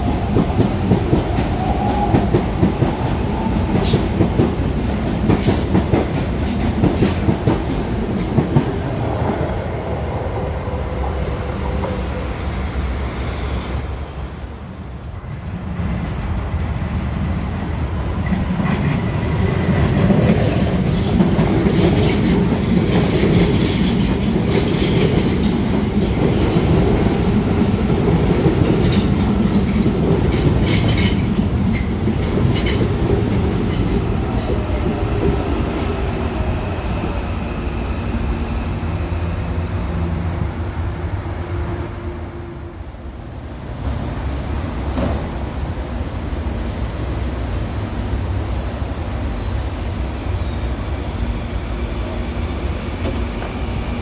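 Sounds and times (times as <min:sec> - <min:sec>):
train wheels clacking on rails: 0:00.0 - 0:09.4, 0:18.2 - 0:36.2
train rumble: 0:00.0 - 0:54.0.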